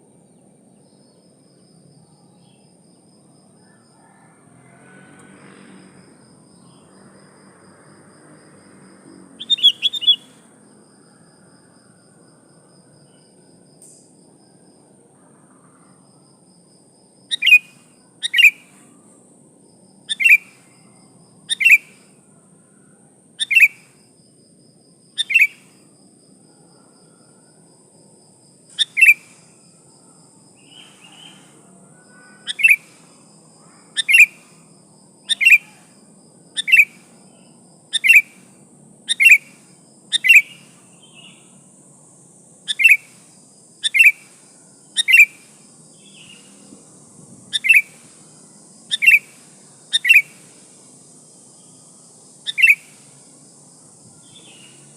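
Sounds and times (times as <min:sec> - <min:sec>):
bulbul calling: 0:09.4 - 0:10.4, 0:17.3 - 0:18.8, 0:20.1 - 0:20.6, 0:21.5 - 0:22.0, 0:23.4 - 0:23.9, 0:25.2 - 0:25.6, 0:28.7 - 0:29.3, 0:32.4 - 0:33.0, 0:34.0 - 0:34.5, 0:35.2 - 0:35.8, 0:36.6 - 0:37.0, 0:37.9 - 0:38.4, 0:39.1 - 0:41.4, 0:42.7 - 0:43.2, 0:43.8 - 0:44.3, 0:45.0 - 0:46.6, 0:47.5 - 0:48.0, 0:48.9 - 0:50.4, 0:52.5 - 0:52.9.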